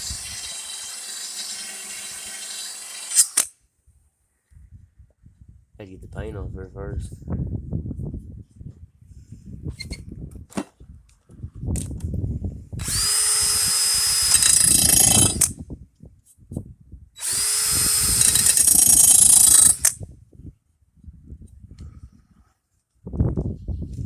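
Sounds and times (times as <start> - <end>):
drill grinding metal blade: 0.0 - 3.5, 12.8 - 15.6, 17.2 - 20.0.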